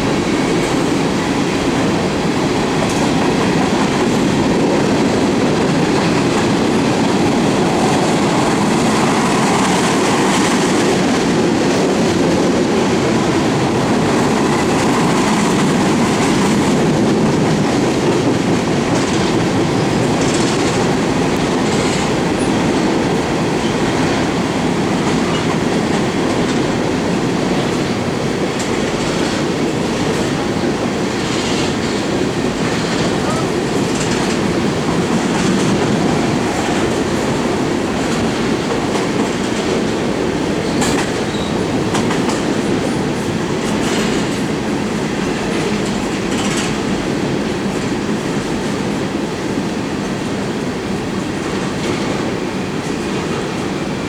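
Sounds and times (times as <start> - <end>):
train cars rolling past: 0.0 - 54.0
steel wheels clicking over rail joints: 2.8 - 22.9, 31.1 - 48.8.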